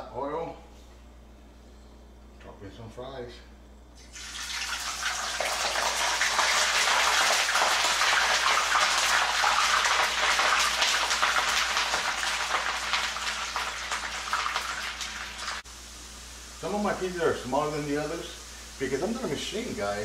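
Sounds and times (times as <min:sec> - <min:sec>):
fries sizzling in hot oil: 0:04.0 - 0:20.0.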